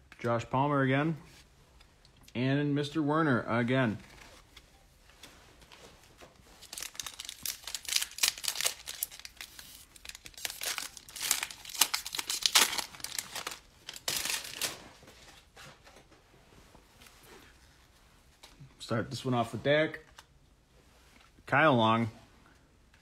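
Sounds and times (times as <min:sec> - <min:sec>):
foil wrapper tearing and crinkling: 0:06.6 - 0:14.8.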